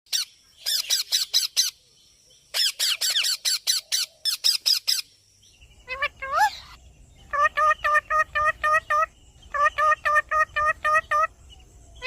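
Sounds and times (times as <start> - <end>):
parrot calling: 5.8 - 11.4.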